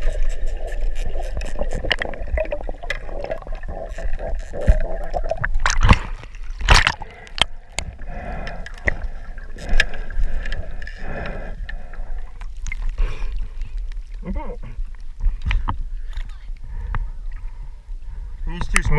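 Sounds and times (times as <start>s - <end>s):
water rushing bursts: 0.0s - 11.2s
water gurgling and sloshing: 0.0s - 18.5s.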